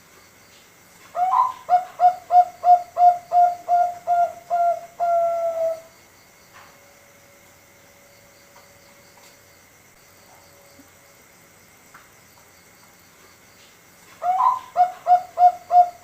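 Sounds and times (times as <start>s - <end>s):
dove cooing: 1.2s - 5.9s, 14.2s - 16.0s.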